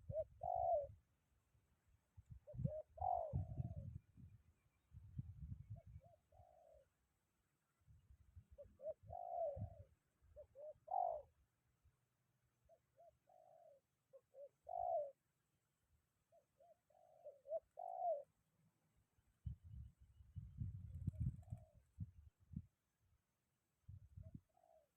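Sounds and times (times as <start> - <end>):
dove cooing: 0.0 - 1.0, 2.3 - 4.3, 5.4 - 7.0, 8.4 - 11.4, 12.7 - 15.2, 16.3 - 18.4, 21.0 - 22.1, 24.2 - 24.9.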